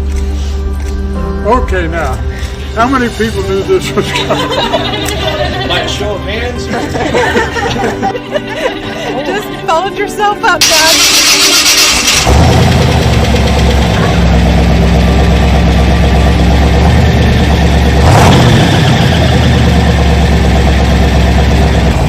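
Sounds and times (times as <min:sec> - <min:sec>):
car engine idling: 0:10.6 - 0:22.0.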